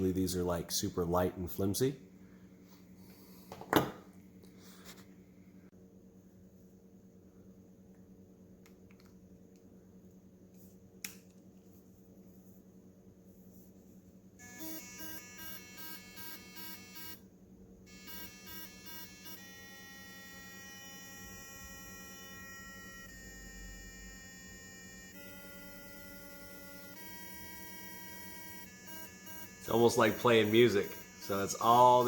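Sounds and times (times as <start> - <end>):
electric toothbrush buzzing: 14.4 - 17.2, 17.9 - 32.0.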